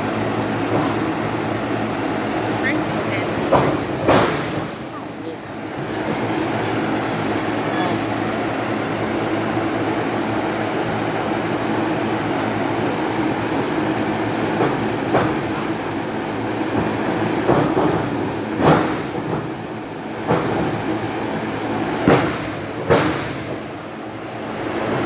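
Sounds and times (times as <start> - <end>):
murmur of hall noise: 0.0 - 19.5
thuds and slaps on wrestling mat: 22.0 - 23.6.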